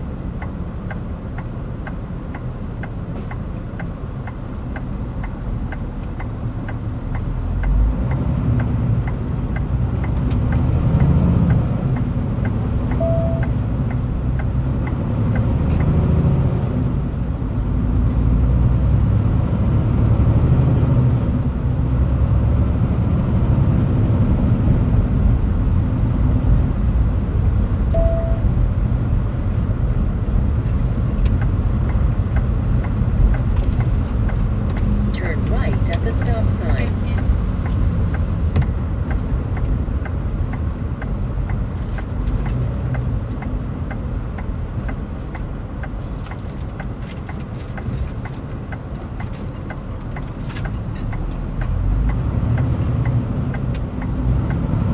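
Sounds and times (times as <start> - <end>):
vehicle engine and road rumble: 0.0 - 54.9
light ticks: 0.4 - 16.0, 29.8 - 54.9
short beeps: 12.9 - 13.6, 27.9 - 28.5.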